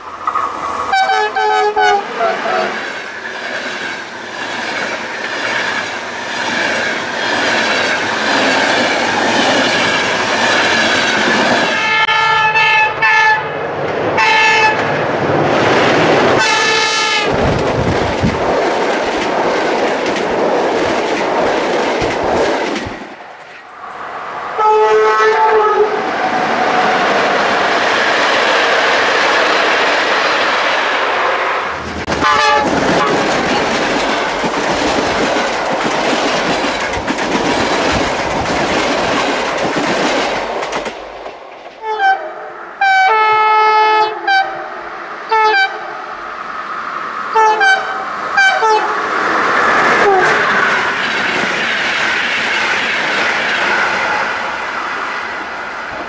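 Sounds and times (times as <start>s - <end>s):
trains passing at speed: 0.0s - 56.0s
locomotive horn blasts: 0.9s - 2.8s, 11.8s - 13.5s, 14.2s - 14.8s, 16.4s - 17.3s, 24.6s - 26.0s, 32.2s - 33.2s, 41.8s - 44.7s, 45.3s - 45.9s, 47.3s - 49.0s, 50.0s - 50.4s.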